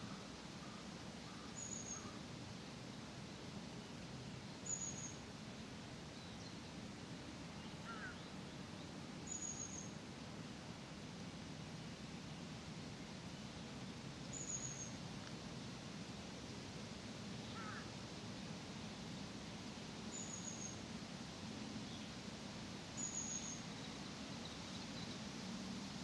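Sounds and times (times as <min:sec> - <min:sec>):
small bird calling: 0:00.0 - 0:02.2, 0:07.6 - 0:08.3, 0:17.4 - 0:17.9
soft hiss: 0:00.0 - 0:26.0.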